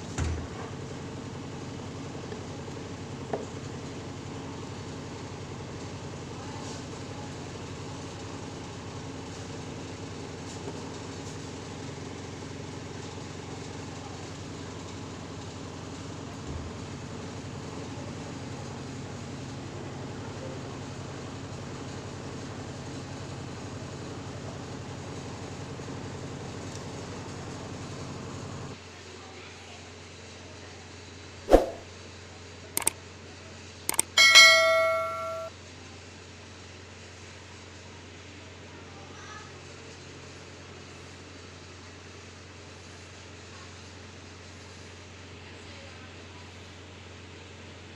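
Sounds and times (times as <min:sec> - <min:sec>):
double clicks: 0:33.9 - 0:34.2
bell ding: 0:33.9 - 0:35.5.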